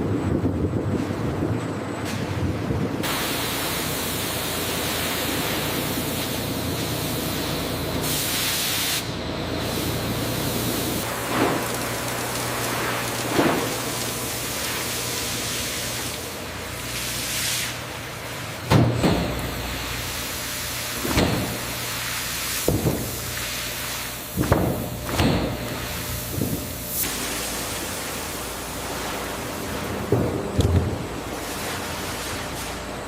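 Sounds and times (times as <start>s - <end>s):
machinery hissing: 3.0s - 33.0s.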